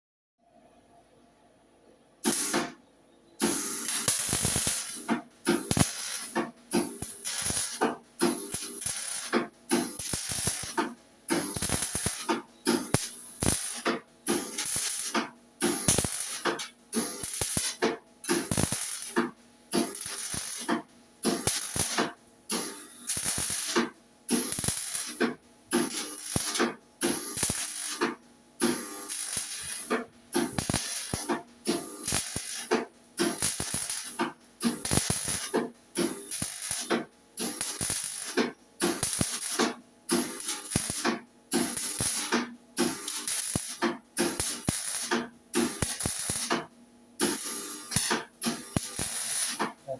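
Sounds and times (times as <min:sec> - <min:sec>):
welding arc crackling: 0:02.2 - 0:02.8, 0:03.4 - 0:49.9.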